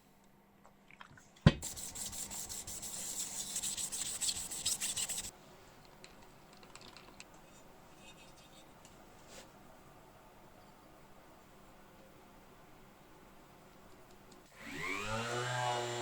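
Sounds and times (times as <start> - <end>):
scratchy abrasive rubbing: 1.6 - 5.3.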